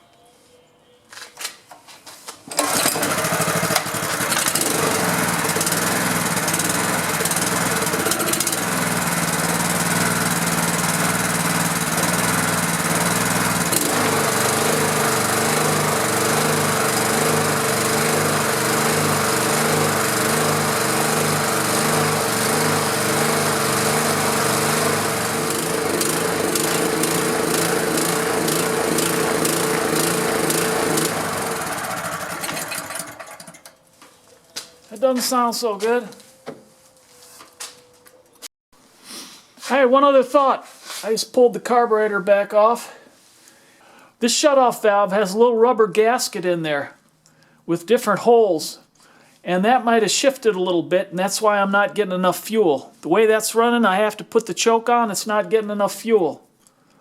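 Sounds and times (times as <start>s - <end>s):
pressure washer engine running unevenly: 2.5s - 33.6s.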